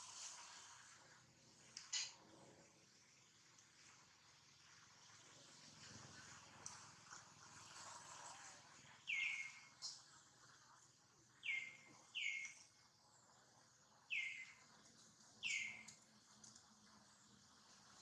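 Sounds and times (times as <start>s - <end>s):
faint outdoor hiss: 0.0s - 18.0s
bird chirping: 9.0s - 10.1s, 11.4s - 12.8s, 14.1s - 14.7s, 15.4s - 16.0s.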